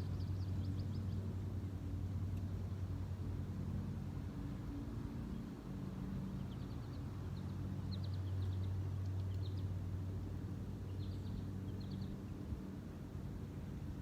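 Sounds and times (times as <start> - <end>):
small birds chirping: 0.0 - 1.4, 5.3 - 12.6.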